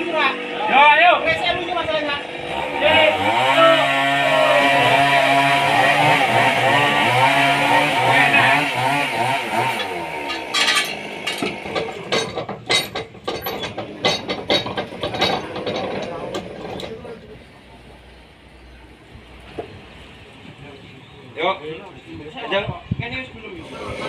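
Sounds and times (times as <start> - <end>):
sawmill motor running: 1.9 - 17.4
knocks and clatter: 9.6 - 17.2.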